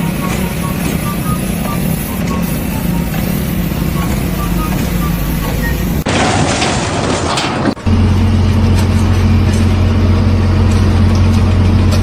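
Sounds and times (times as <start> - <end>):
noisy rumble: 0.0 - 11.9
heavy engine droning: 0.0 - 12.0.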